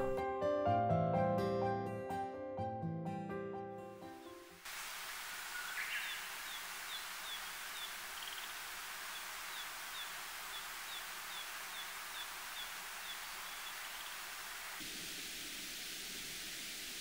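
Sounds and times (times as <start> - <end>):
outdoor ambience hiss: 4.0 - 17.0.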